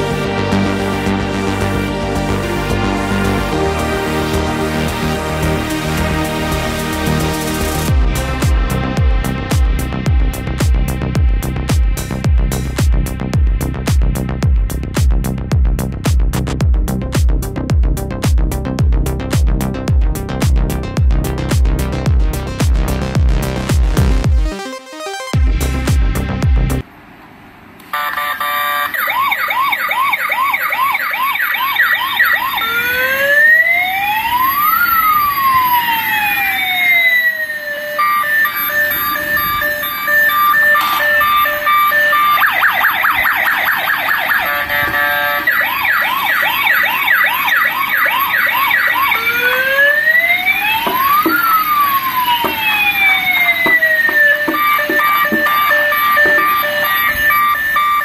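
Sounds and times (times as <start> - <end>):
toy police car electronic siren: 28.0 - 58.0.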